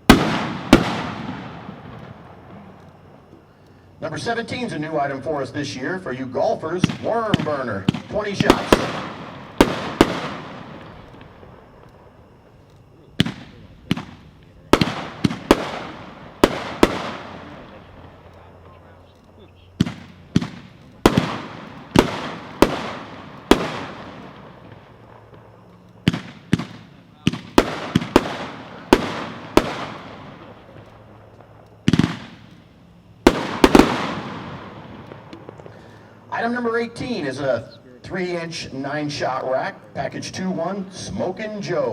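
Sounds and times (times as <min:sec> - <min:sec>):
firework bangs with rumbling echo: 0:00.0 - 0:03.1, 0:06.8 - 0:12.4, 0:13.2 - 0:18.3, 0:19.8 - 0:32.6, 0:33.2 - 0:35.8.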